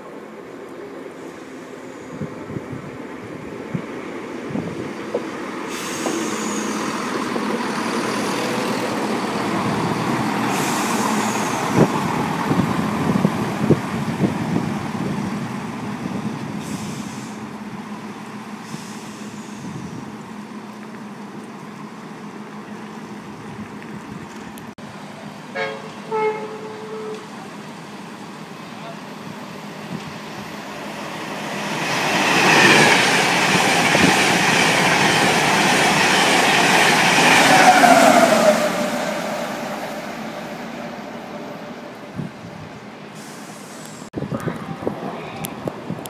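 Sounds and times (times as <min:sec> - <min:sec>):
train engine and wheels passing: 0:00.0 - 0:46.0.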